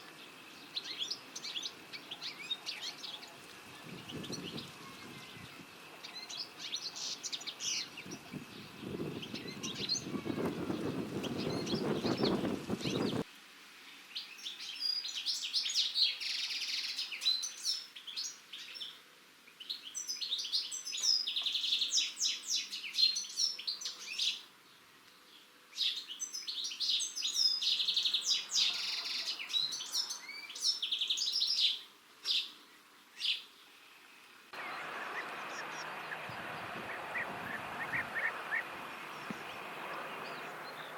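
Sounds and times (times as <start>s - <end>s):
goldfinch twittering song: 0.5s - 13.2s, 34.6s - 40.9s
low rumbling noise: 34.6s - 40.9s.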